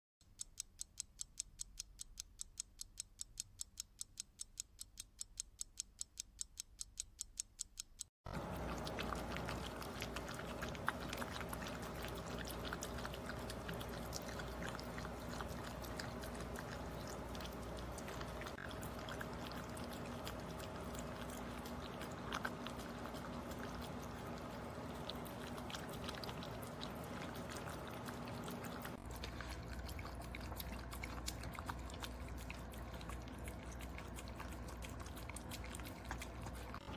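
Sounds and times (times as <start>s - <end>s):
rapid even ticking: 0.2s - 36.8s
dog chewing and lapping food: 8.3s - 36.9s.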